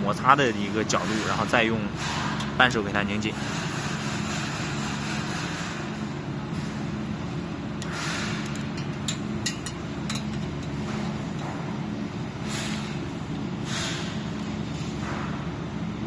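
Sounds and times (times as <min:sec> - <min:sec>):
steady low hum: 0:00.0 - 0:16.0
wrench clicking on bolts: 0:07.8 - 0:11.4.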